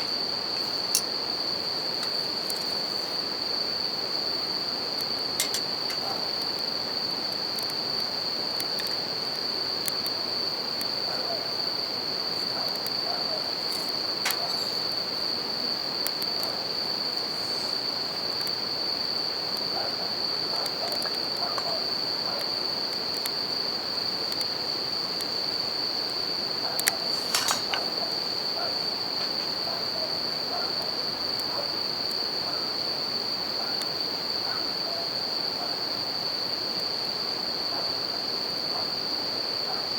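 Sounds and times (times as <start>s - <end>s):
crickets trilling: 0.0s - 39.9s
campfire crackling pops: 4.4s - 11.0s, 11.6s - 15.2s, 15.9s - 18.7s, 19.4s - 29.8s.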